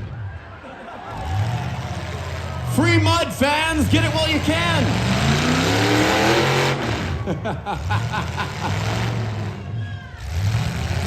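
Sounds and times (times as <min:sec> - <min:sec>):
car engine revving hard: 0:03.8 - 0:11.0.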